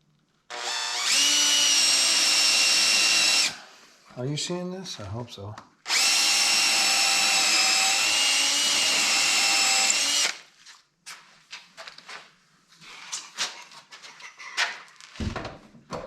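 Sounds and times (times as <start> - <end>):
electric drill whining: 0.5 - 3.7, 5.9 - 10.5.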